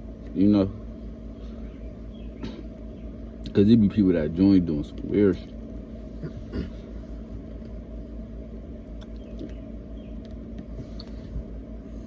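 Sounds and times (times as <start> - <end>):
vehicle interior rumble: 1.4 - 12.0
faint murmur: 5.4 - 7.7.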